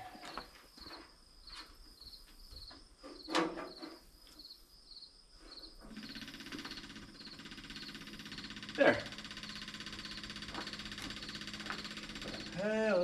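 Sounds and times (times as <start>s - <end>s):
crickets chirping: 0.0s - 13.0s
electric fuel pump ticking: 6.0s - 12.7s.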